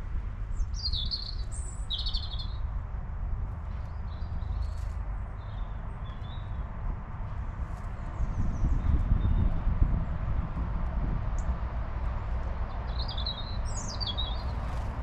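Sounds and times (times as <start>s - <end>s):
songbirds chirping: 0.4s - 2.8s, 3.4s - 10.2s, 12.4s - 15.0s.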